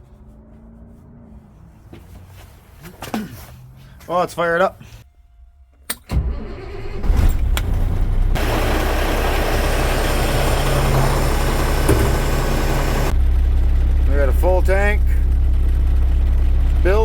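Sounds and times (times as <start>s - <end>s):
diesel engine starting and idling: 6.0s - 17.0s.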